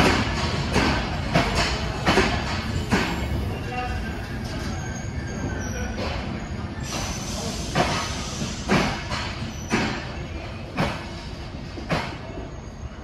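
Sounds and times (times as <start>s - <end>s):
train coaches rumbling past: 0.0s - 13.0s
faint high squeal: 3.5s - 7.5s.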